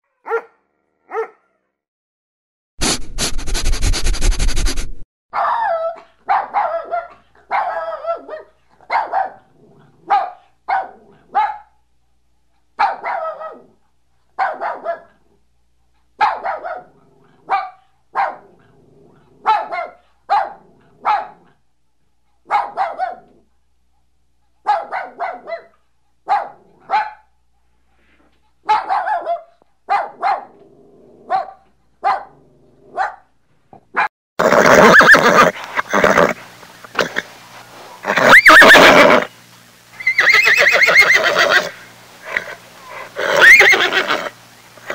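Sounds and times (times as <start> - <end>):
dog barking: 0.1 - 1.7, 5.3 - 11.8, 12.8 - 13.7, 14.4 - 15.2, 16.2 - 18.5, 19.4 - 21.6, 22.4 - 23.3, 24.6 - 27.3, 28.6 - 30.6, 31.2 - 33.3, 33.9 - 34.1.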